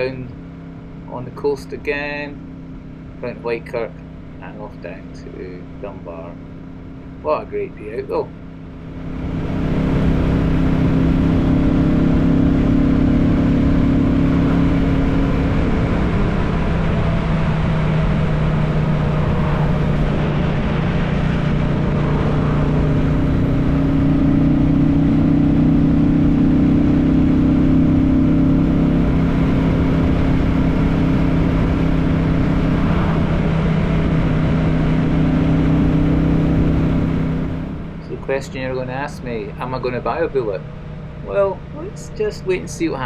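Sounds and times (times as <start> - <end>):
motorcycle engine cruising: 0.0 - 43.0
rush of wind: 8.9 - 28.0, 28.6 - 38.1.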